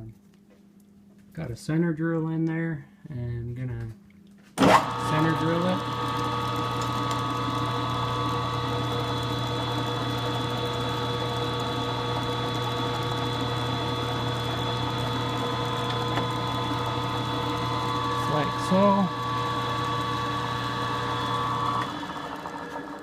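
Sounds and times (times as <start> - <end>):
milling machine spindle humming: 4.6 - 23.0.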